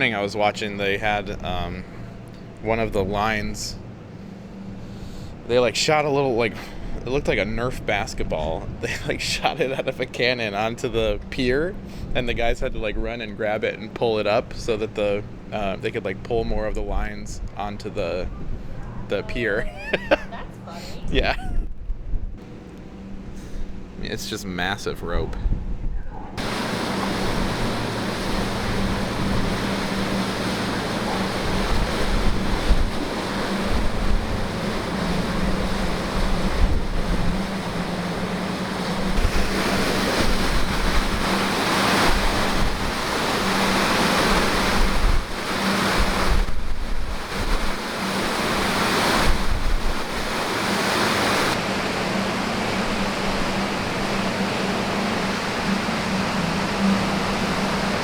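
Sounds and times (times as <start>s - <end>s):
steady low hum: 0.0s - 58.0s
wind buffeting microphone: 20.3s - 22.4s, 25.0s - 58.0s.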